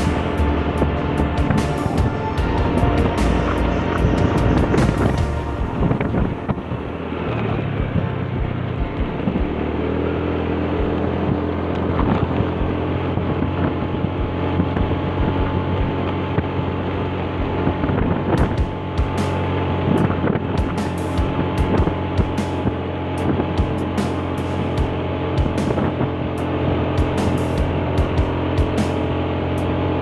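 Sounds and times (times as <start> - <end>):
wind rushing over microphone: 0.0 - 10.0, 10.6 - 23.7
vehicle engine running: 0.0 - 30.0.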